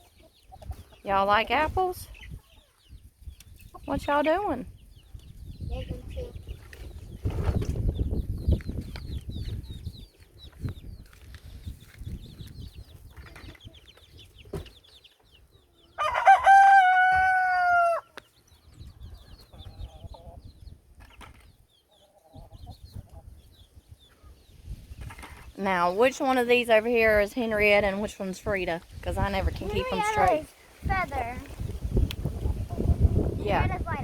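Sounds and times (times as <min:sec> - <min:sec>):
chickens clucking: 0:00.0 - 0:28.6, 0:29.2 - 0:34.0
rooster crowing: 0:16.0 - 0:18.1.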